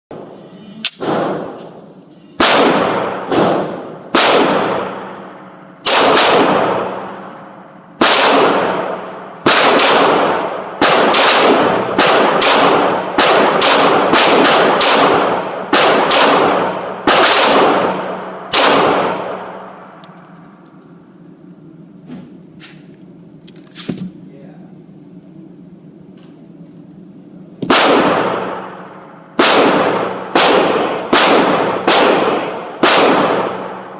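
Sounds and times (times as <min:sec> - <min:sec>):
gunshots echoing: 0:00.1 - 0:01.8, 0:02.4 - 0:20.3, 0:27.6 - 0:33.9.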